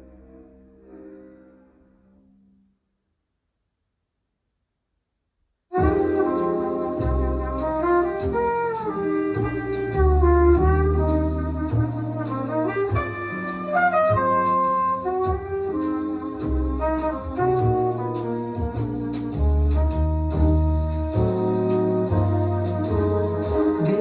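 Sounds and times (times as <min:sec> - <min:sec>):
bass line: 0:05.7 - 0:24.0
brass horns playing melody: 0:05.7 - 0:24.0.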